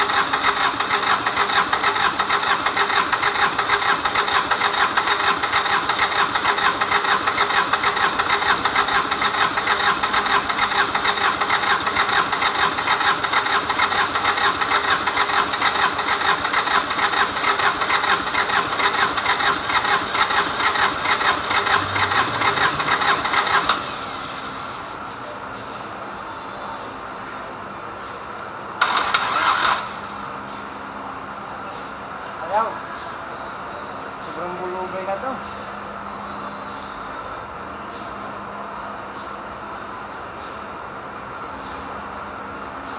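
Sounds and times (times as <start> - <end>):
diesel engine clattering: 0.0 - 24.7.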